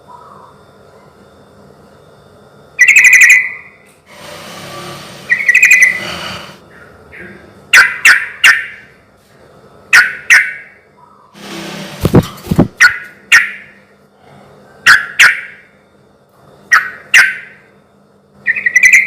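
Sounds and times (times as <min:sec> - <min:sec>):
bird singing bubbling phrases: 0:18.5 - 0:19.0.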